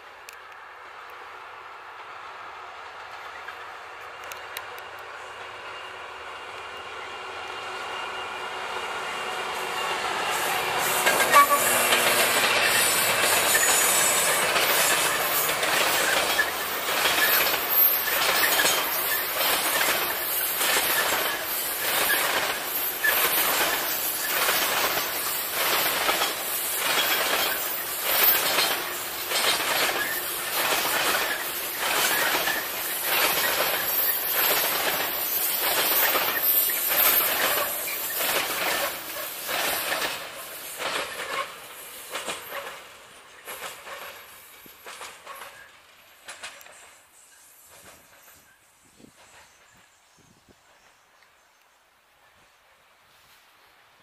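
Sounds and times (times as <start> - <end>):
diesel locomotive: 0.0 - 54.0
faint wheel squeal: 7.6 - 25.3
train wheels clattering over rail joints: 9.0 - 50.0.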